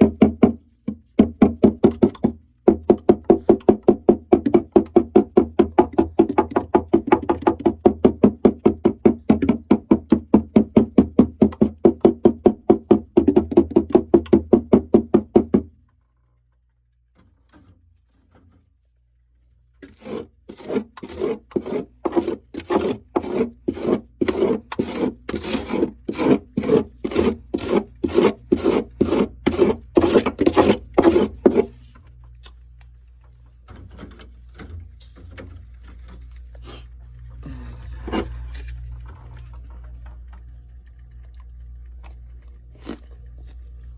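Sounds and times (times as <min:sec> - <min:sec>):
frost crunching: 0:37.6 - 0:43.9.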